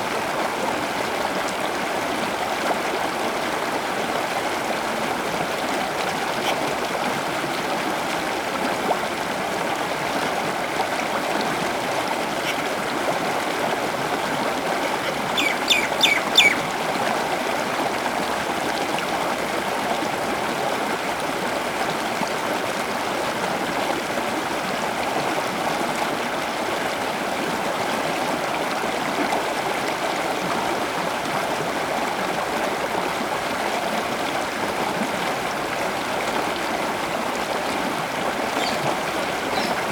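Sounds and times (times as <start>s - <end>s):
running water rushing: 0.0s - 39.9s
bird calling sharply: 15.0s - 16.7s, 38.6s - 39.9s.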